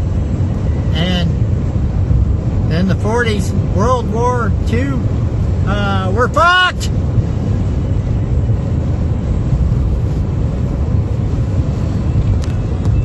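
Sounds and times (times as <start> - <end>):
strong wind rushing: 0.0 - 13.0.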